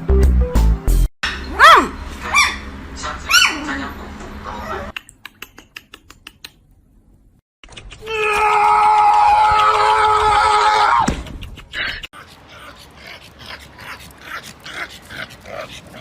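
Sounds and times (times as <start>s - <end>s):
small dog yelping: 1.4s - 2.7s, 3.3s - 3.6s.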